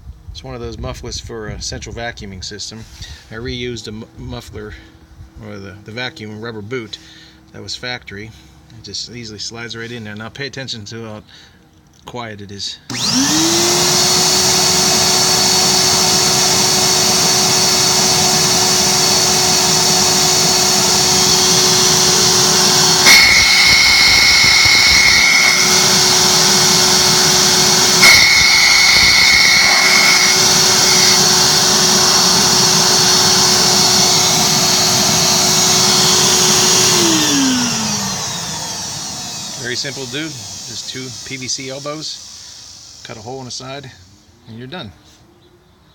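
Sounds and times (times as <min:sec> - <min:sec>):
vacuum motor running: 0:12.9 - 0:43.6.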